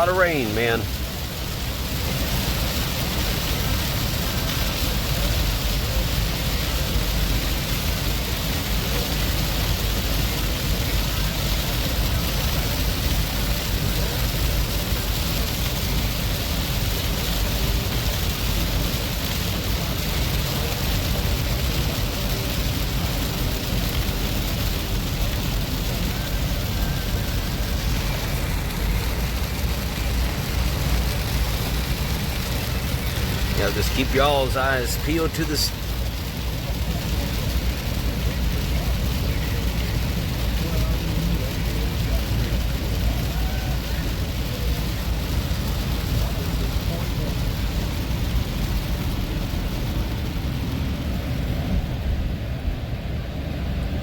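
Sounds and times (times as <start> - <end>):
heavy rain on car: 0.0 - 54.0
road noise: 0.0 - 54.0
wet tyre spray: 0.0 - 54.0.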